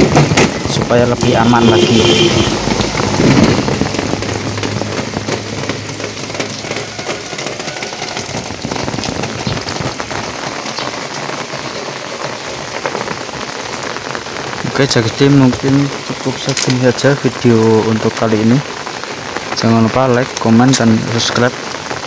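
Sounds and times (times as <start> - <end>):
low rumble: 0.0 - 7.6
steady rain falling: 0.0 - 22.0.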